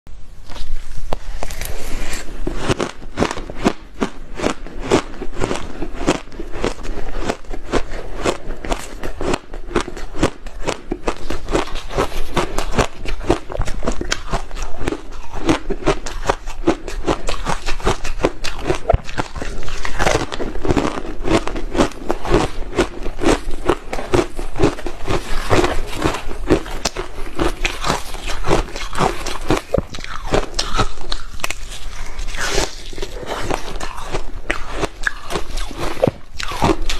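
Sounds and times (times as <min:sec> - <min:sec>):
crunching ice: 0:02.0 - 0:36.9.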